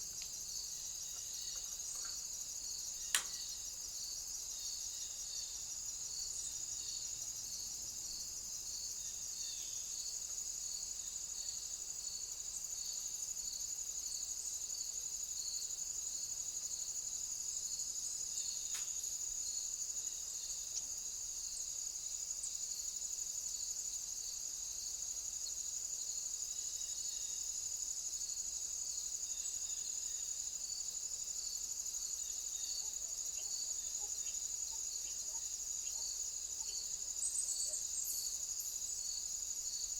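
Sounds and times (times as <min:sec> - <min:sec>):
crickets trilling: 0:00.0 - 0:39.9
pulsing insect call: 0:32.1 - 0:39.9.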